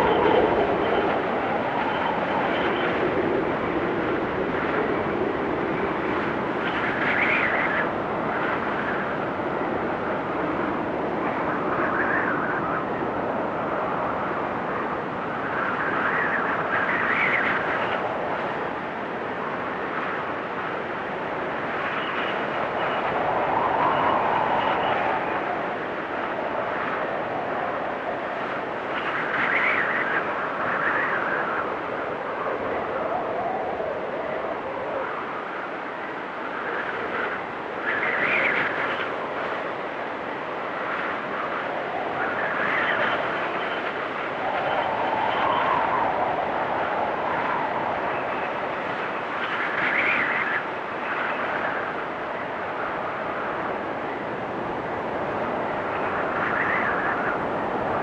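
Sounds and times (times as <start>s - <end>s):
snowstorm wind blowing hard: 0.0s - 58.0s
whistling wind gust: 0.0s - 58.0s.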